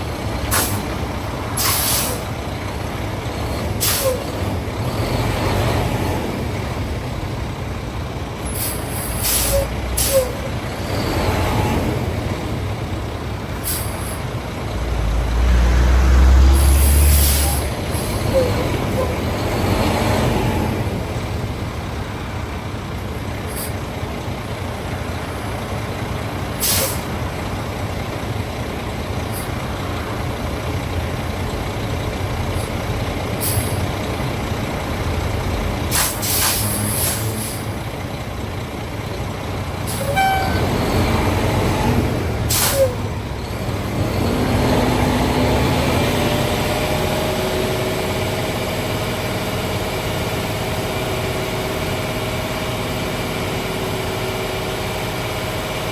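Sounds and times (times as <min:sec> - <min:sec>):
diesel truck engine running: 0:00.0 - 0:55.9
air brake hisses: 0:01.6 - 0:02.3, 0:03.8 - 0:04.3, 0:08.5 - 0:10.4, 0:13.6 - 0:14.2, 0:16.6 - 0:17.7, 0:26.6 - 0:27.1, 0:35.9 - 0:37.7, 0:42.5 - 0:43.1.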